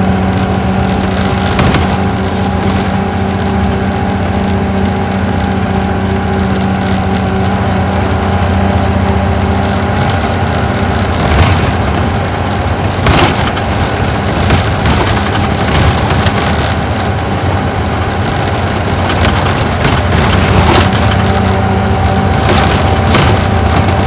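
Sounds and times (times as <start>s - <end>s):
diesel engine hum: 0.0s - 24.0s
road noise: 0.0s - 24.0s
knocks and rattles: 0.3s - 5.5s, 9.6s - 17.2s, 18.0s - 24.0s.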